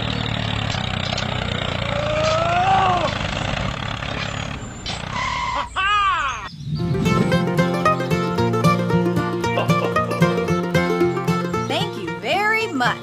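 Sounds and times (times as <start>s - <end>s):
drawn-out call: 0.0s - 6.5s.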